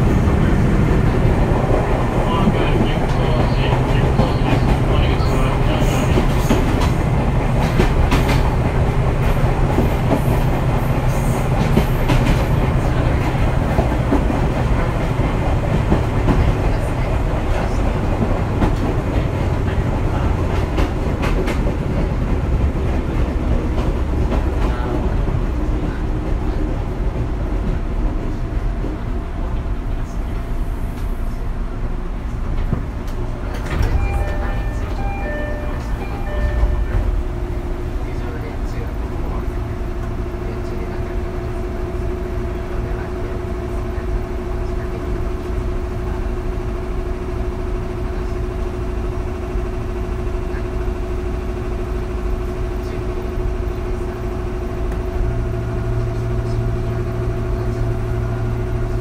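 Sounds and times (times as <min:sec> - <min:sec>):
rail joints clickety-clack: 0:00.0 - 0:59.0
train wheels rumbling: 0:00.0 - 0:59.0.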